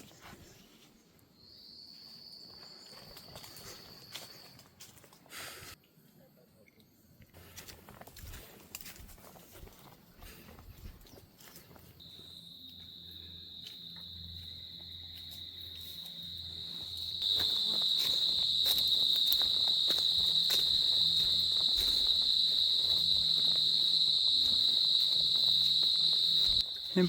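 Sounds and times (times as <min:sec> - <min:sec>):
insect buzzing: 0:12.0 - 0:27.0.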